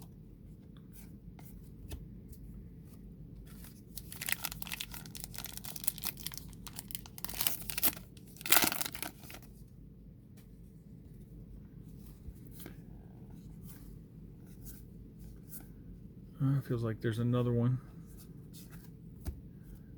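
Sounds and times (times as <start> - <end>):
wrapper tearing and crinkling: 3.6 - 9.5.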